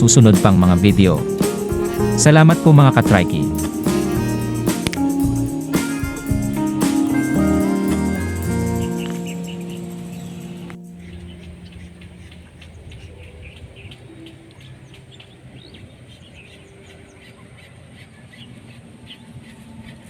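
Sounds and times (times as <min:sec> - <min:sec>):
birds chirping: 0:00.0 - 0:19.7.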